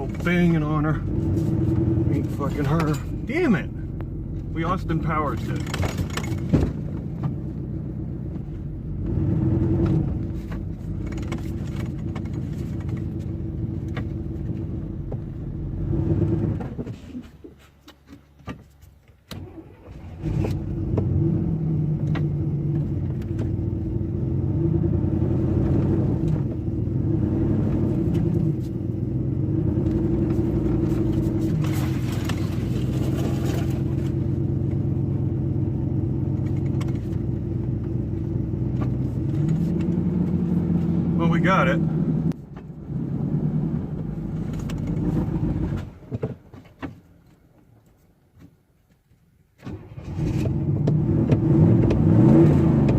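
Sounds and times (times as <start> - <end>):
pickup engine running and revving: 0.0 - 16.9, 20.0 - 46.3, 49.9 - 52.9.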